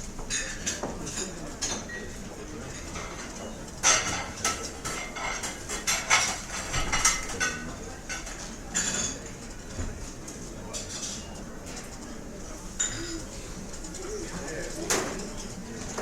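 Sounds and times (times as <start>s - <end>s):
murmur of voices: 0.0s - 16.0s
cutlery and dishes clinking: 2.7s - 9.4s.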